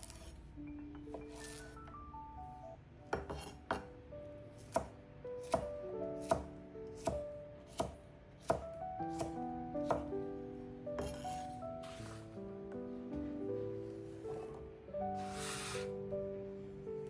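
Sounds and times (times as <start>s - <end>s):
soft melodic background music: 0.0s - 17.0s
knife chopping on cutting board: 3.1s - 3.9s, 4.7s - 10.1s, 11.0s - 12.2s.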